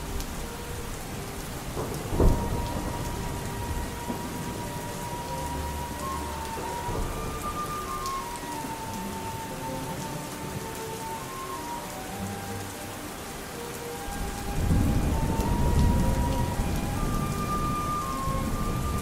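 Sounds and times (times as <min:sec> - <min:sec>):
thunder clap and rumbling: 0:00.0 - 0:10.1, 0:14.0 - 0:19.0
faint music with long notes: 0:00.0 - 0:19.0
steady rain: 0:00.0 - 0:19.0.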